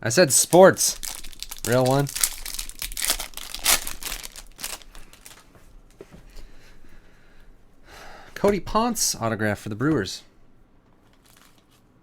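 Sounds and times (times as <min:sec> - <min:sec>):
wrappers crinkling and tearing: 0:00.4 - 0:05.5, 0:11.0 - 0:12.0.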